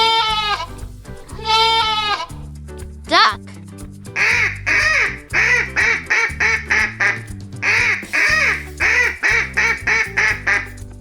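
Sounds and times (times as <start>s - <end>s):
background music: 0.0s - 11.0s
duck quacking: 4.2s - 10.8s.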